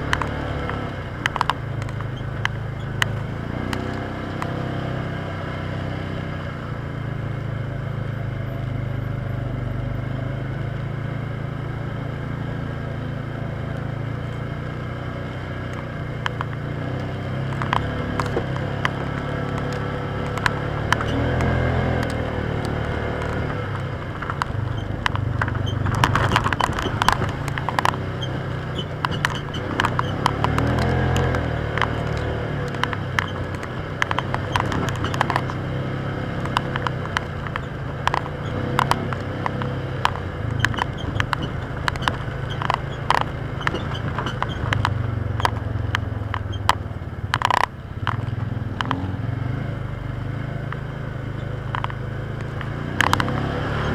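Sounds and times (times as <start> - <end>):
knocks and rattles: 0.0 - 4.6, 17.4 - 49.0, 51.4 - 53.9
vehicle engine running: 0.0 - 53.9.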